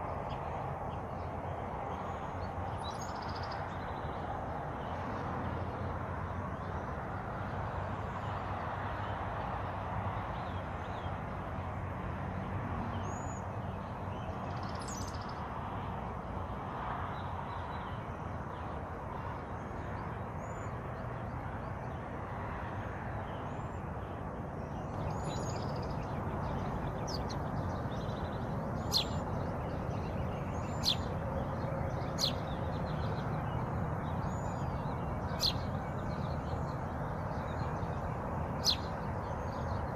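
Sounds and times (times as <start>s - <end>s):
steady rushing background noise: 13.5s - 39.9s
birds chirping: 23.2s - 39.9s.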